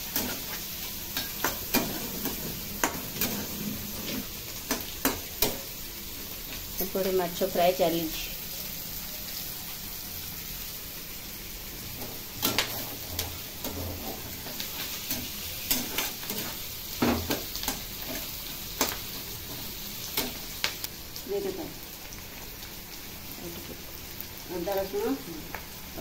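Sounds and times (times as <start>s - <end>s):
hot oil sizzling: 0.0s - 26.0s
metal spatula scraping a pan: 0.1s - 5.6s, 12.0s - 19.0s.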